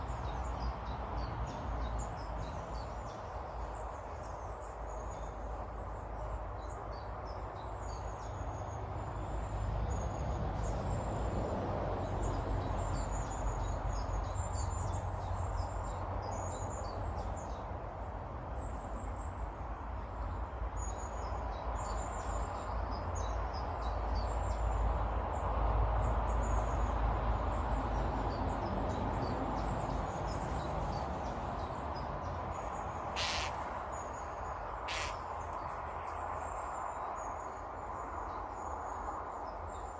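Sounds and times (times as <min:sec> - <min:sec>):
small birds chirping: 0:27.6 - 0:39.9.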